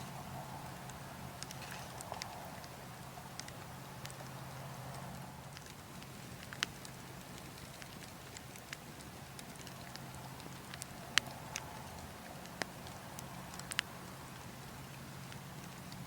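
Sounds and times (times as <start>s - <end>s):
burning logs crackling: 0.0s - 16.0s
low rush of wind: 0.0s - 16.0s
sharp pops from fire: 4.9s - 16.0s.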